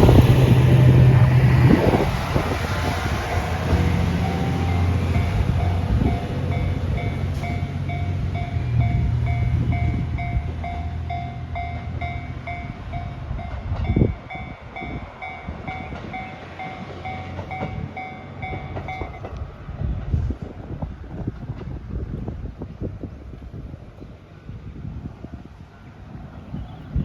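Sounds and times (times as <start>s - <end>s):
diesel railcar engine droning: 0.0s - 27.0s
bell-like signal ringing: 13.9s - 19.3s.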